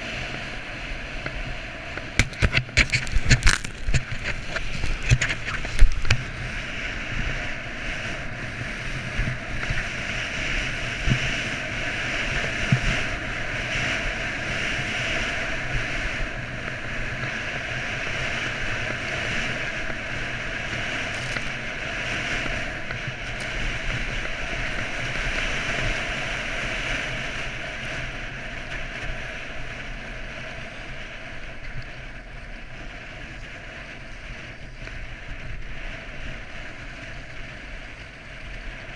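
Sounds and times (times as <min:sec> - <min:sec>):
wind buffeting microphone: 0:00.0 - 0:38.9
skis hissing through snow: 0:18.4 - 0:28.0.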